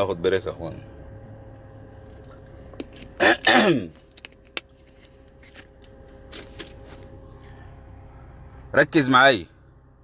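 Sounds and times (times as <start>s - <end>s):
man clearing his throat: 3.2s - 4.0s.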